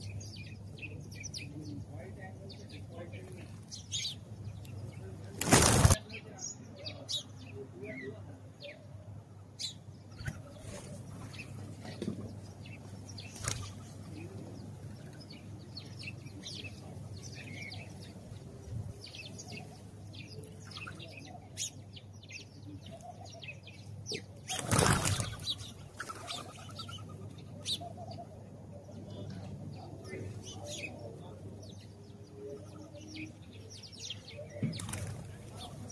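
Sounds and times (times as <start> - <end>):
sparrows chirping: 0.0 - 35.9
flutter of wings: 5.4 - 6.0, 24.5 - 26.5.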